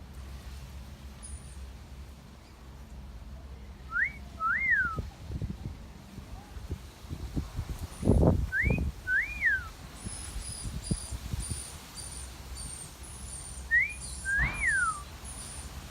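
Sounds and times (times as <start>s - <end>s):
wolf whistle: 3.9s - 5.0s, 8.5s - 9.7s, 13.6s - 15.7s
very high chirps: 9.1s - 15.7s.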